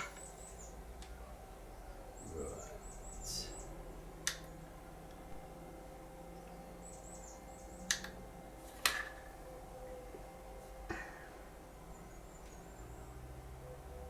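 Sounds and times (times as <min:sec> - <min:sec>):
faint steady hum: 0:00.0 - 0:14.0
sharp clicks: 0:07.8 - 0:08.2.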